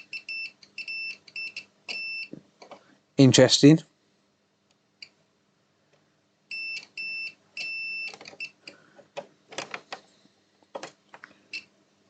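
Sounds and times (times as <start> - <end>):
multimeter continuity beeps: 0.0 - 2.3, 6.5 - 8.6, 11.5 - 11.7.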